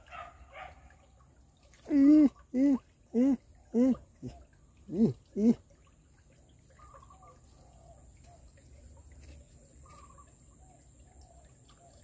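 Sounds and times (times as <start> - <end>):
faint bird chirps: 6.6 - 12.0.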